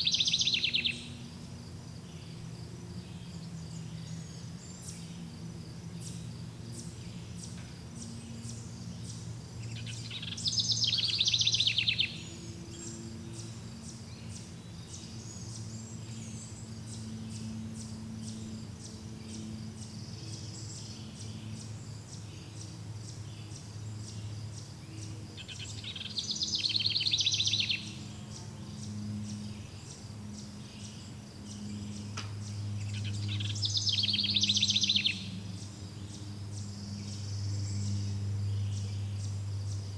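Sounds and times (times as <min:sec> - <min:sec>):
songbird trilling: 0:00.0 - 0:01.3, 0:06.0 - 0:18.6, 0:25.4 - 0:39.9
faint low hum: 0:00.0 - 0:39.9
insects chirping: 0:00.0 - 0:39.9.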